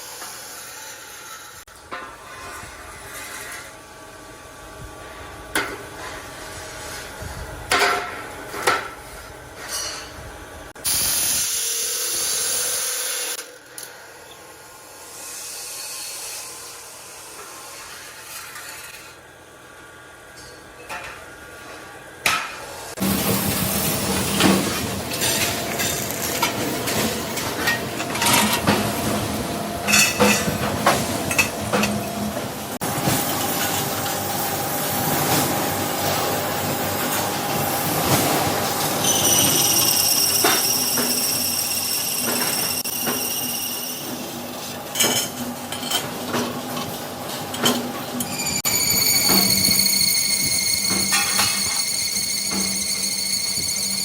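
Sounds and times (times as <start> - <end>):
loud hiss: 10.8 - 13.4
metal knocks and clanks: 50.5 - 51.9.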